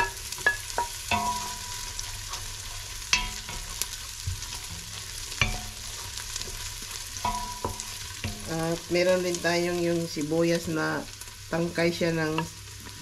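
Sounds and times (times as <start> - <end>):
wooden spoon knocking on pot: 0.0 - 1.8, 3.1 - 6.6, 7.2 - 8.9
onions sizzling in hot oil: 0.0 - 13.0.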